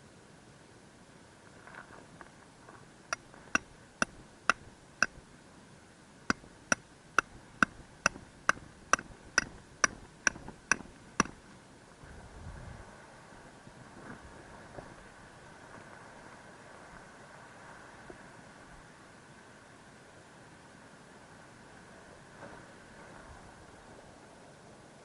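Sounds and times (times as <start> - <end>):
hammer striking tent stakes: 3.6 - 5.2, 6.3 - 11.4.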